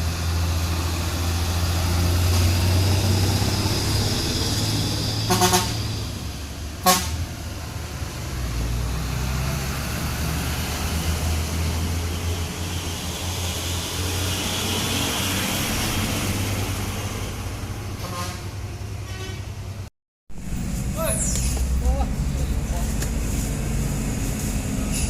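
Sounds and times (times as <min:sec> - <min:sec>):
heavy truck diesel engine rumble: 0:00.0 - 0:25.0
tyre and road noise: 0:00.0 - 0:25.0.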